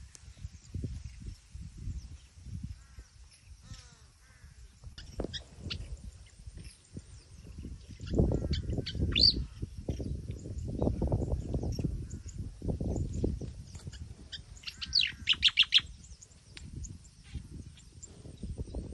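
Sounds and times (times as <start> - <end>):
small birds chirping: 0.0 - 18.9
sweeping bird call: 3.0 - 9.7, 13.8 - 16.4.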